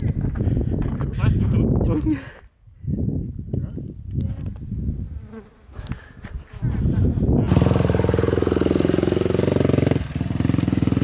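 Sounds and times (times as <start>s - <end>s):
dirt bike engine revving: 7.5s - 11.0s.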